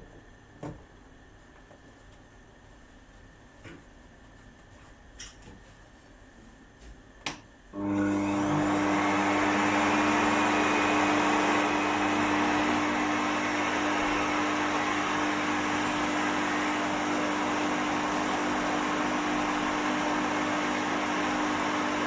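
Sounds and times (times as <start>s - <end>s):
hair dryer blowing: 7.8s - 22.0s.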